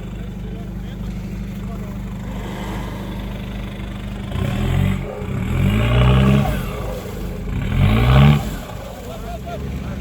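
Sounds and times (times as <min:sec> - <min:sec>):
engine idling and revving: 0:00.0 - 0:10.0.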